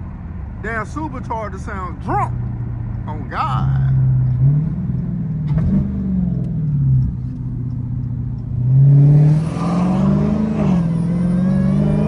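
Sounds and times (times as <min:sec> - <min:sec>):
car engine accelerating: 0:02.4 - 0:12.0.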